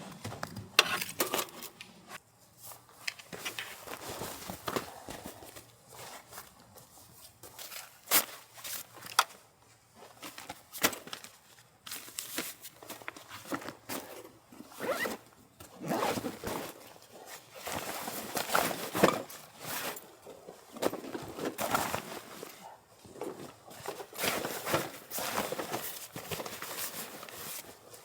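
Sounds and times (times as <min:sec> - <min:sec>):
zipper rasping pulls: 0:14.8 - 0:15.2, 0:15.8 - 0:16.6.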